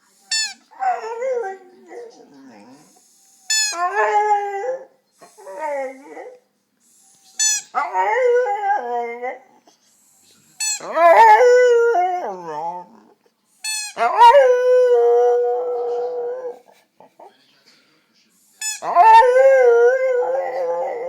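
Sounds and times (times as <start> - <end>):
dog howling: 0.7 - 2.9, 3.7 - 6.4, 7.7 - 9.6, 10.8 - 13.1, 14.0 - 16.7, 18.8 - 21.0.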